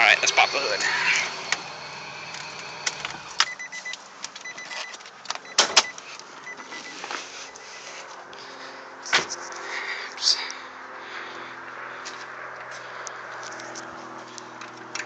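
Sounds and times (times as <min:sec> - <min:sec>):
car hood release clicks and clunk: 0:04.2 - 0:06.0.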